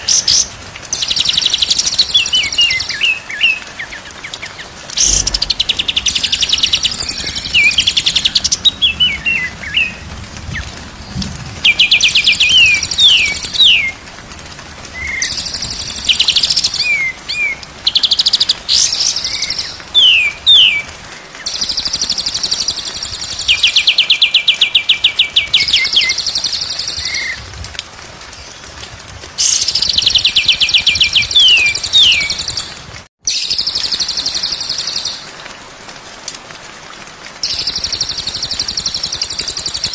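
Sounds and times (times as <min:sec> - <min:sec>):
songbird trill and whistles: 0:29.4 - 0:32.7.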